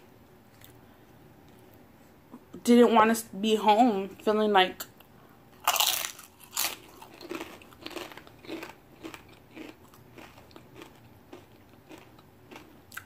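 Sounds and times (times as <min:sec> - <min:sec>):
chewing crunchy chip: 0:05.6 - 0:13.0.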